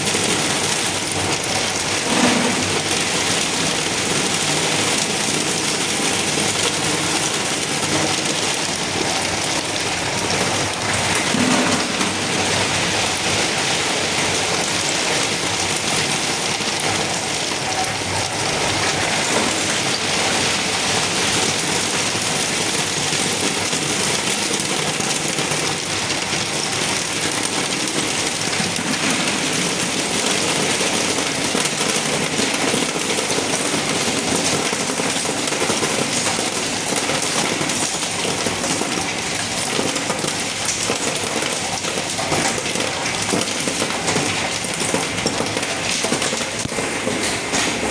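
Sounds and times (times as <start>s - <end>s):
machinery hissing and rattling: 1.9s - 3.4s.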